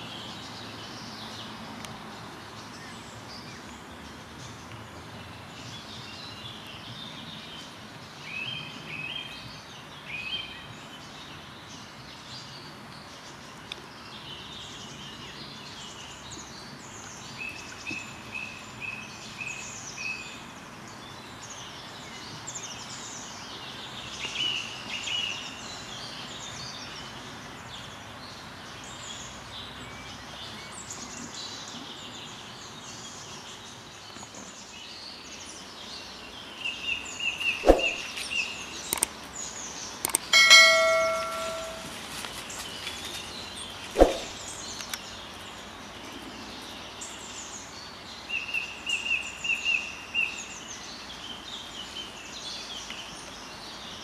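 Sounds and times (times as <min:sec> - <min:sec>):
birds singing and calling: 0:00.0 - 0:54.0
outdoor background hiss: 0:00.0 - 0:54.0
sharp click: 0:37.6 - 0:38.1, 0:38.9 - 0:39.2, 0:40.0 - 0:40.3, 0:44.0 - 0:45.0.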